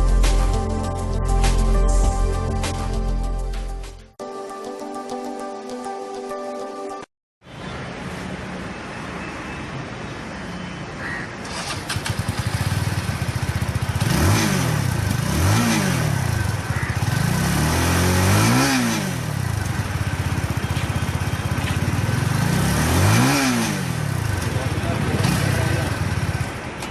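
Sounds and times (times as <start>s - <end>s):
engine revving: 11.5s - 26.7s
motorcycle engine idling: 11.6s - 17.8s, 19.2s - 22.8s, 24.0s - 26.7s.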